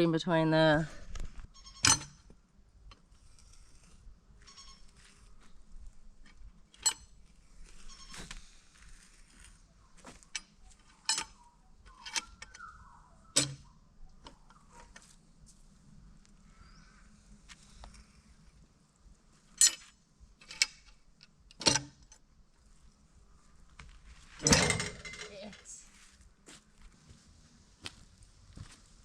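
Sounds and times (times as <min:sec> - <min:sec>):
faint crackly rustling: 0:22.5 - 0:24.4.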